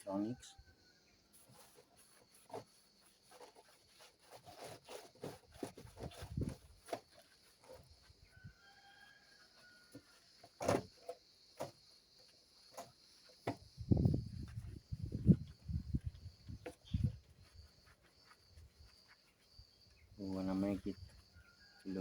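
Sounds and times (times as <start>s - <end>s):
rubbing and scrubbing plastic: 1.3s - 8.3s, 9.4s - 22.0s.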